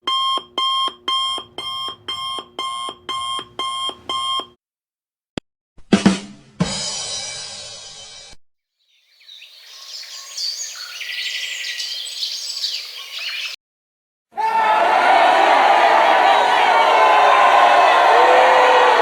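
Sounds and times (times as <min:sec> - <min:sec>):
electronic alarm beeping: 0:00.0 - 0:04.6.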